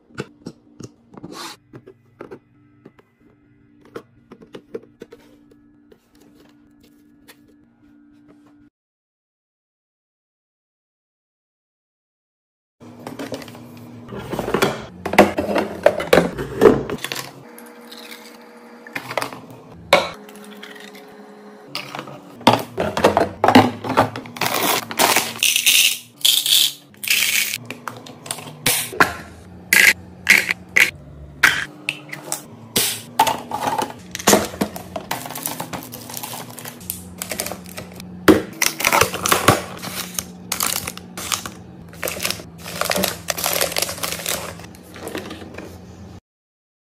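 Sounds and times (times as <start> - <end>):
items clicking and clinking: 21.7 - 32.5, 33.1 - 45.8.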